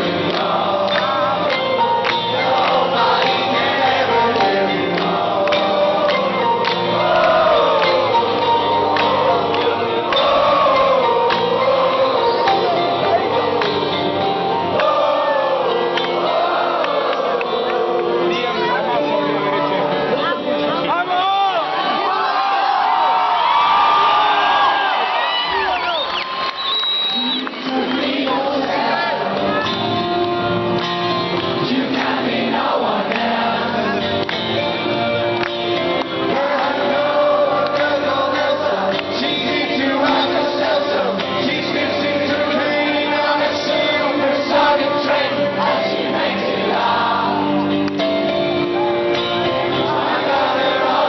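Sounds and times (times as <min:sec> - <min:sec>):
man singing: 0:00.0 - 0:20.9, 0:27.2 - 0:29.8, 0:35.8 - 0:47.6, 0:49.2 - 0:51.0
live rock band playing: 0:00.0 - 0:21.2, 0:27.2 - 0:51.0
crowd noise: 0:00.0 - 0:51.0.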